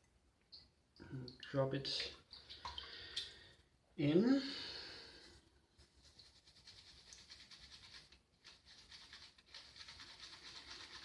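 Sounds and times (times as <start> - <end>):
shaving brush swishing lather: 5.8 - 11.0.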